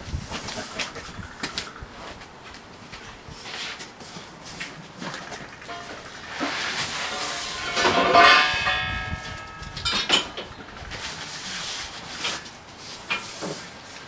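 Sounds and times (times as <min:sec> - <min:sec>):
metal parts clanging: 0:05.7 - 0:11.4.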